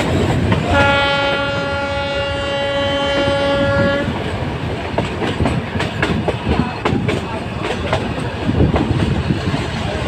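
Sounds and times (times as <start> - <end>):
train running and rattling: 0.0 - 10.0
train horn blast: 0.7 - 4.2.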